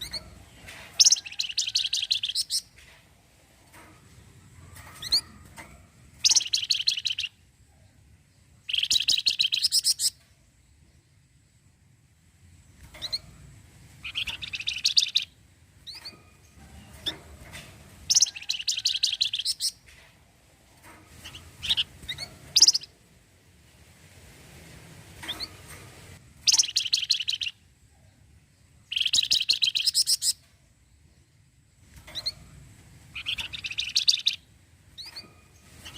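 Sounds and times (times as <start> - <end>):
bird chirps: 0.0 - 2.8, 4.8 - 5.4, 6.2 - 11.1, 12.7 - 17.2, 18.1 - 19.8, 21.2 - 22.9, 26.4 - 35.9
songbird rattling song: 0.0 - 23.3, 24.9 - 35.9.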